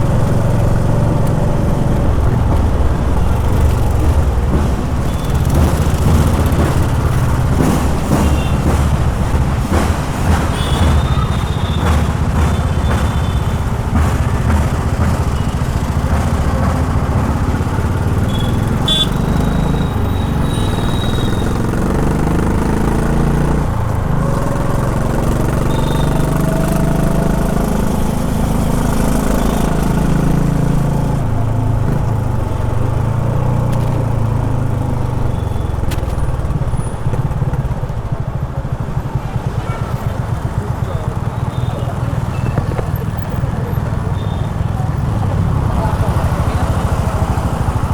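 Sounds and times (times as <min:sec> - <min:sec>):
motorcycle engine revving: 0:00.0 - 0:47.9
horn toots: 0:01.9 - 0:26.8.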